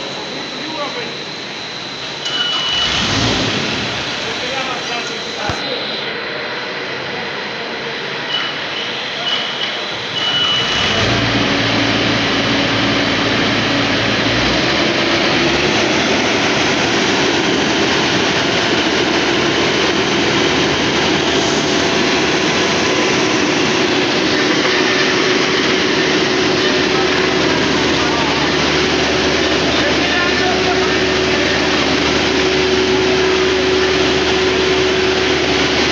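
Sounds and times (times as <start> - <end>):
loud engine running: 0.0 - 35.9
boring machine mechanical din: 8.2 - 35.9.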